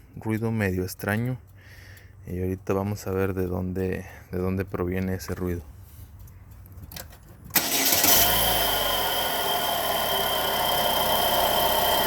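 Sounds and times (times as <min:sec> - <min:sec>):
car engine starting and idling: 0:06.7 - 0:12.0.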